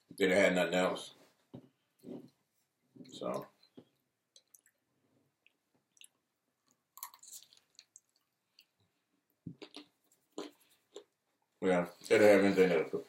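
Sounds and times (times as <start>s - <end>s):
chewing and mouth smacks: 4.3s - 4.8s, 5.4s - 8.8s, 9.5s - 11.2s.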